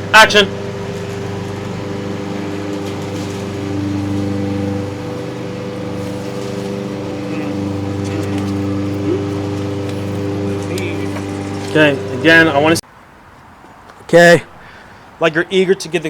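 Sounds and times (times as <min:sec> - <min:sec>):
machine hum with low drone: 0:00.0 - 0:12.8.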